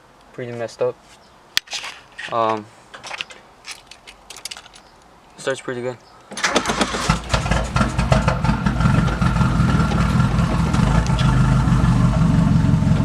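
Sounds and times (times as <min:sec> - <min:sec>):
car engine idling: 0:06.4 - 0:13.0.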